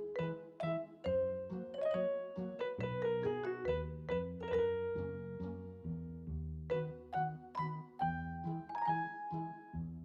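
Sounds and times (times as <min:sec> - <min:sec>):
piano-like keyboard melody: 0:00.0 - 0:10.0
bass notes: 0:03.1 - 0:07.1, 0:09.8 - 0:10.0.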